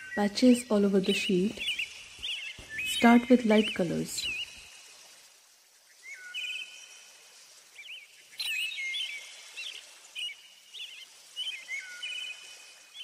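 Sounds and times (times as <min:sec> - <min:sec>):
birds chirping: 0:00.0 - 0:04.7
steady outdoor hiss: 0:00.0 - 0:13.0.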